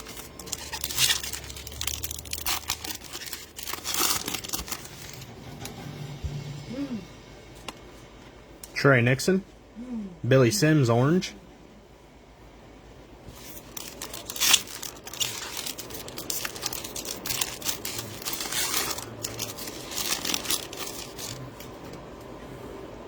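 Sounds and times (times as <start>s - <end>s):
card wrappers crinkling: 0.0s - 5.2s, 13.3s - 22.0s.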